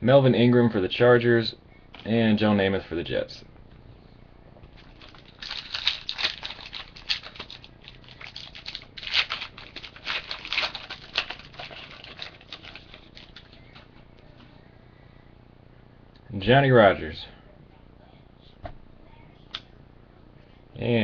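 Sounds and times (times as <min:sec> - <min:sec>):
trading cards rustling and flicking: 0:04.8 - 0:14.0.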